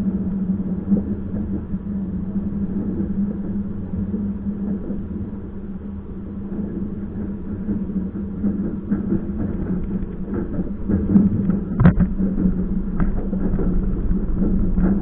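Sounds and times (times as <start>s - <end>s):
train running hum and rumble: 0.0s - 15.0s
knocks and rattles: 8.5s - 15.0s.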